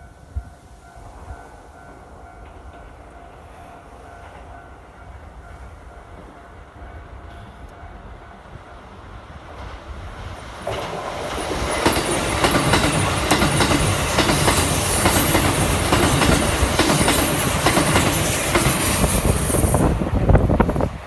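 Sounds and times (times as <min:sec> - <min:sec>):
electric train passing at speed: 0:00.0 - 0:21.0
wheels clattering over rail joints: 0:10.6 - 0:20.9.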